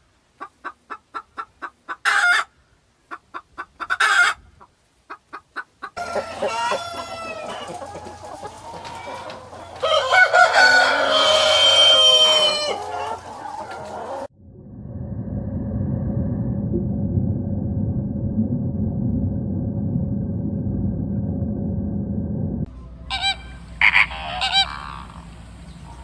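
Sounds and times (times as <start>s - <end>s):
chickens clucking: 0.4s - 14.3s, 23.1s - 26.0s
rooster crowing: 6.0s - 14.3s, 23.1s - 25.3s.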